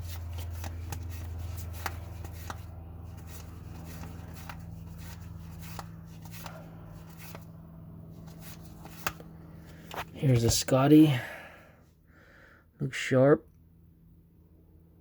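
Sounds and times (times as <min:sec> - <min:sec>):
trading cards clicking and slapping: 0:00.0 - 0:07.5, 0:08.2 - 0:10.1
steady low hum: 0:00.0 - 0:15.0.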